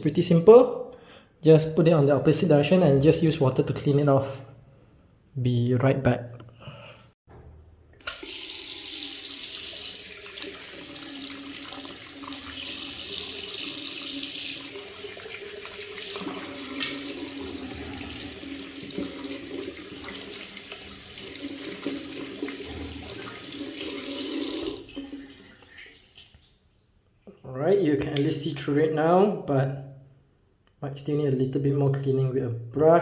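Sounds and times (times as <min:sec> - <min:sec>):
tap water running into sink: 0:08.0 - 0:26.5.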